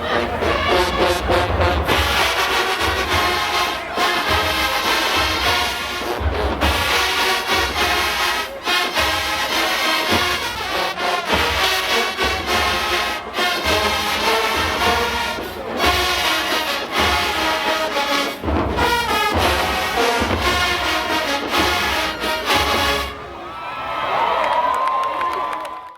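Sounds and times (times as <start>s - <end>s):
marching band brass: 0.0s - 24.3s
bass drum beats: 18.4s - 23.0s.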